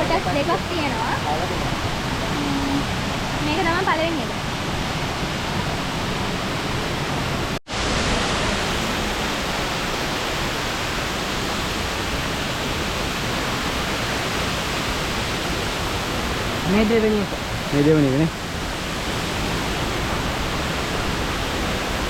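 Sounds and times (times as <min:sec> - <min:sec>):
waterfall pouring over rock: 0:07.7 - 0:22.0.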